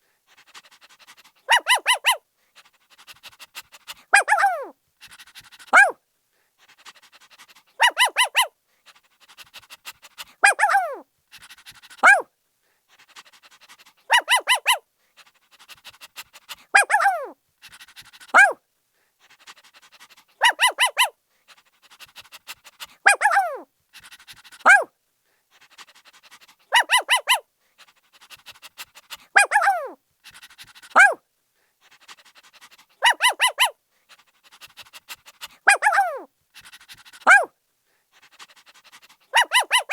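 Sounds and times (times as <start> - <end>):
puppy yelping: 1.5 - 2.2, 4.1 - 4.7, 5.7 - 6.0, 7.8 - 8.5, 10.4 - 11.0, 12.0 - 12.2, 14.1 - 14.8, 16.8 - 17.4, 18.3 - 18.6, 20.4 - 21.1, 23.0 - 23.6, 24.6 - 24.9, 26.3 - 27.4, 29.3 - 31.2, 33.0 - 33.8, 35.6 - 36.3, 37.2 - 37.5, 39.3 - 39.9
puppy yipping: 1.5 - 2.2, 4.1 - 4.7, 5.7 - 6.0, 7.8 - 8.5, 10.4 - 11.0, 12.0 - 12.2, 14.1 - 14.8, 16.8 - 17.4, 18.3 - 18.6, 20.4 - 21.1, 23.0 - 23.6, 24.6 - 24.9, 26.7 - 27.4, 29.3 - 30.0, 30.9 - 31.2, 33.0 - 33.8, 35.6 - 36.3, 37.2 - 37.5, 39.3 - 39.9.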